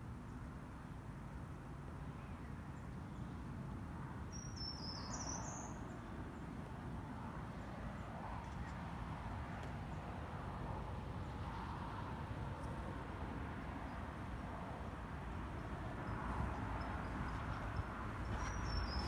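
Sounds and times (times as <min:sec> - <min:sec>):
small bird singing: 0:04.3 - 0:06.0, 0:18.2 - 0:19.0.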